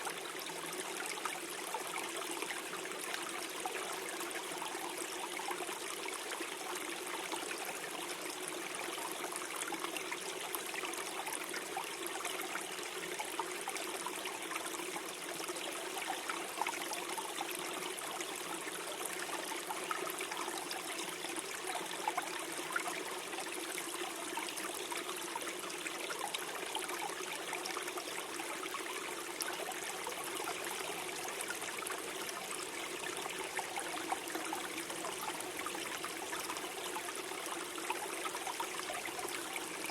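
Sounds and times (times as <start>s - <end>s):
stream gurgling over stones: 0.0s - 39.9s.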